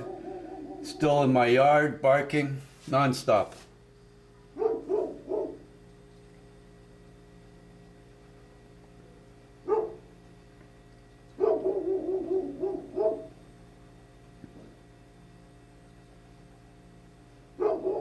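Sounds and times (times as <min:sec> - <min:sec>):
dog barking: 0:00.0 - 0:01.0, 0:04.6 - 0:05.7, 0:09.6 - 0:10.1, 0:11.4 - 0:13.4, 0:17.6 - 0:18.0.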